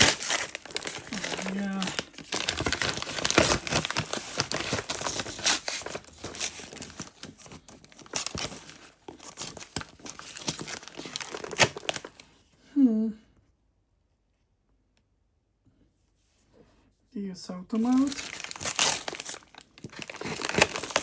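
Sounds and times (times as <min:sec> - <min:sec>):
packing material ripping: 0:00.0 - 0:12.2, 0:17.8 - 0:21.0
packing material crumpling: 0:00.0 - 0:12.3, 0:17.7 - 0:21.0.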